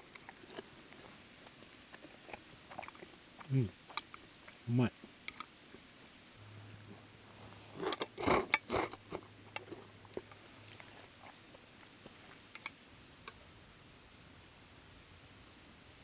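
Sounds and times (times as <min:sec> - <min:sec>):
person chewing: 0:00.0 - 0:04.6, 0:07.7 - 0:12.7
person slurping noodles: 0:07.7 - 0:09.3.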